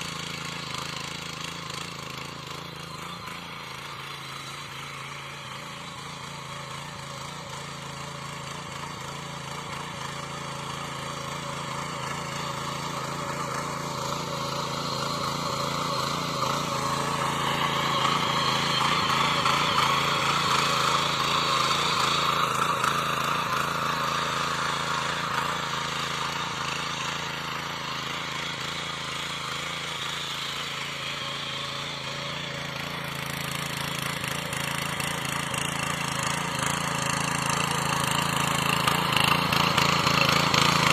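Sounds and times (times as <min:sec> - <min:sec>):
small engine tilling soil: 0:00.0 - 0:40.9.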